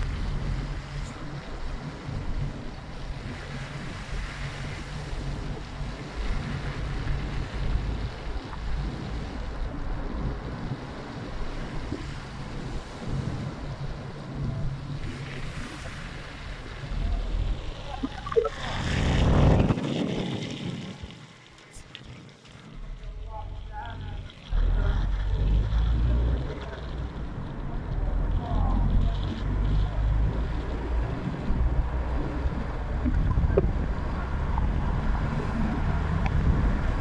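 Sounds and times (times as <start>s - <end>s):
wind buffeting microphone: 0.0s - 21.4s, 28.6s - 37.0s.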